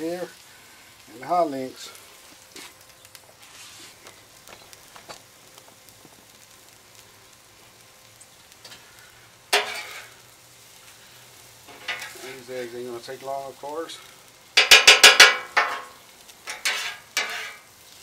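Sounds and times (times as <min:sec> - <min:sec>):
food sizzling on griddle: 0:00.0 - 0:18.0
metal spatula scraping griddle: 0:09.5 - 0:10.2, 0:11.7 - 0:12.6, 0:14.6 - 0:17.8.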